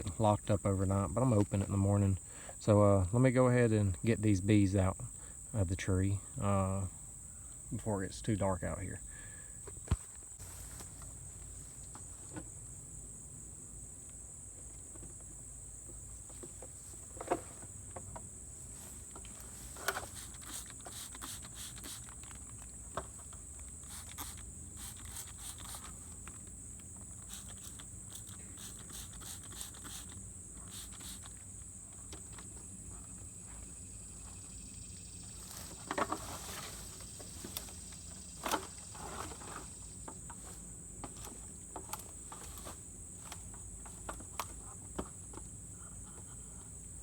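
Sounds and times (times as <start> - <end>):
high-pitched insect chorus: 0.0 - 47.0
handling knocks and ticks: 9.6 - 11.2, 14.7 - 34.6, 35.2 - 46.8.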